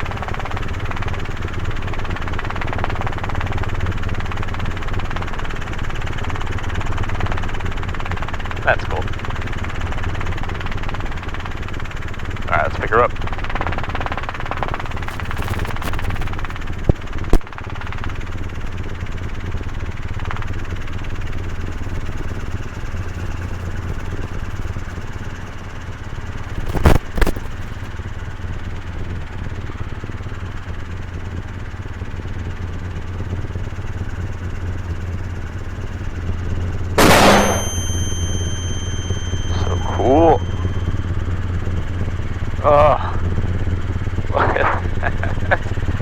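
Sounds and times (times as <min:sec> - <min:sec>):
helicopter engine and rotor drone: 0:00.0 - 0:46.0
loud burst with high tone: 0:37.0 - 0:41.0.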